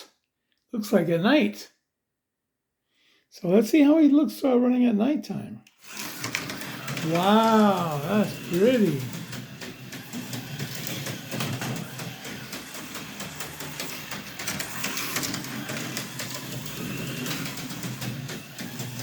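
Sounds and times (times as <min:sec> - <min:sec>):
slot car motor whirring: 0:05.7 - 0:19.0
car rattling over track: 0:05.9 - 0:19.0.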